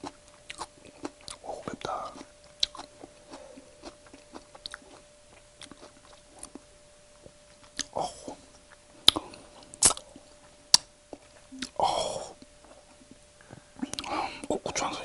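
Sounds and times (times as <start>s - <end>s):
wet mouth chewing sounds: 0.0s - 6.7s, 7.6s - 11.8s.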